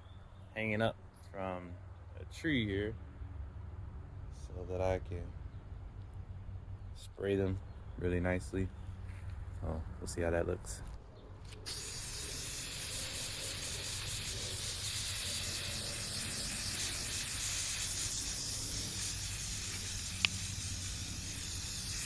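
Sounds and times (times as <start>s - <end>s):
aerosol can spraying hiss: 11.7s - 22.0s.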